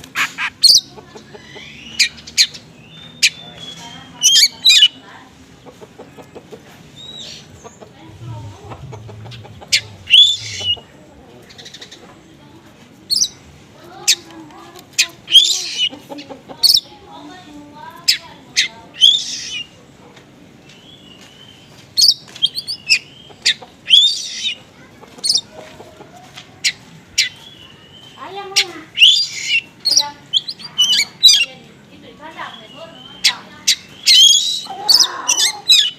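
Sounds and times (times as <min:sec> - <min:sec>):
harsh rasping bird calls: 0:00.0 - 0:12.1, 0:14.9 - 0:17.0, 0:18.0 - 0:19.8, 0:21.0 - 0:25.5, 0:26.6 - 0:31.6, 0:32.2 - 0:35.9
songbird chirps and whistles: 0:08.6 - 0:10.8, 0:32.3 - 0:35.9.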